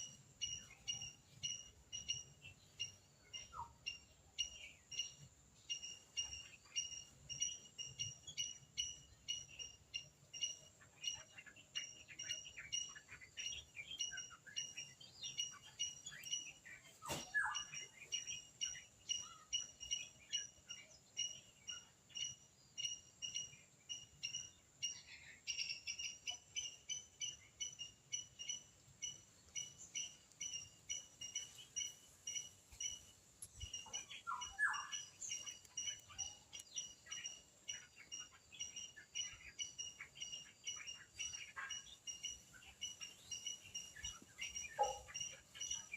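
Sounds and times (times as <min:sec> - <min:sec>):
squirrel chirping: 0:17.4 - 0:45.9.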